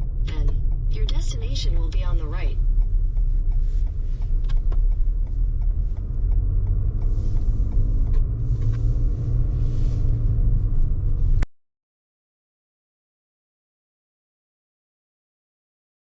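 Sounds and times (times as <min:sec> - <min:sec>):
car road and engine rumble: 0:00.0 - 0:11.5.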